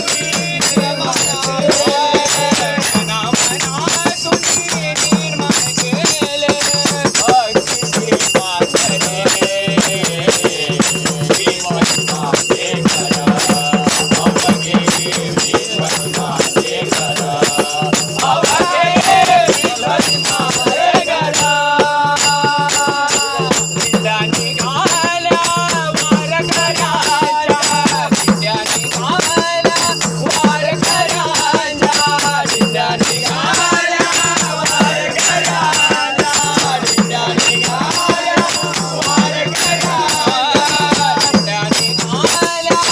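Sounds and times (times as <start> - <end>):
jingling rattling percussion: 0.0 - 42.9
voices singing devotional song: 0.0 - 42.9.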